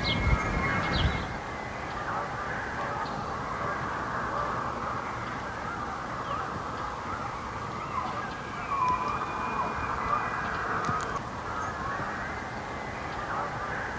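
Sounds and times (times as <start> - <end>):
birds calling in chorus: 0.0 - 1.4.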